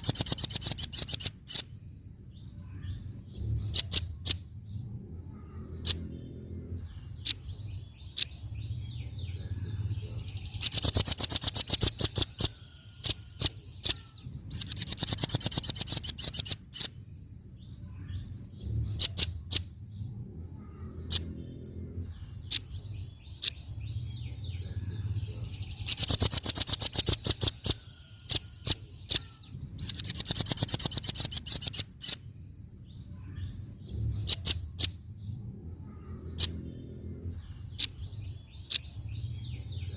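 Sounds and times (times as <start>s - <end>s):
sharp bird chips: 0.0s - 2.2s, 3.6s - 4.6s, 10.3s - 17.4s, 18.4s - 19.8s, 22.2s - 23.8s, 25.4s - 32.6s, 34.0s - 35.1s, 37.5s - 39.9s
bird trilling: 0.0s - 4.6s, 5.2s - 17.1s, 17.9s - 35.1s, 35.8s - 39.9s
low rumble: 1.8s - 10.9s, 17.0s - 26.3s, 32.3s - 39.9s.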